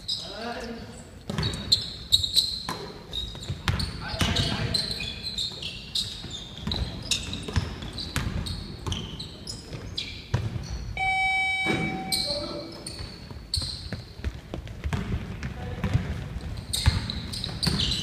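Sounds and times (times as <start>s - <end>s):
sneakers squeaking: 0.0s - 18.0s
steady electronic tone: 11.0s - 12.6s.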